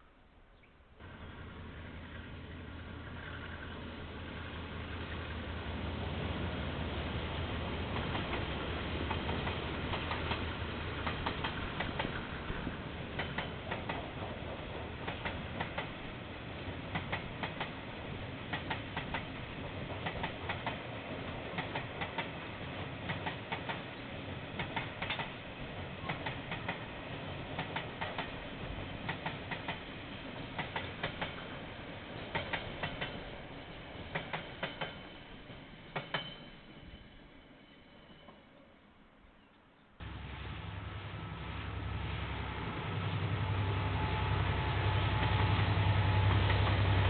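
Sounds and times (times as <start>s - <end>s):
train rumble: 1.0s - 38.6s, 40.0s - 47.0s
train wheels clicking over rail joints: 7.9s - 37.0s.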